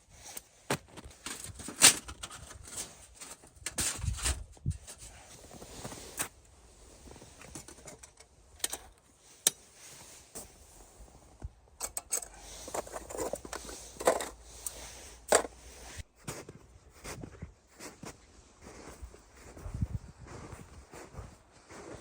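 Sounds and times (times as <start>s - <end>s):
camping gear clicks and knocks: 0.3s - 5.2s, 7.2s - 9.7s, 11.4s - 15.6s.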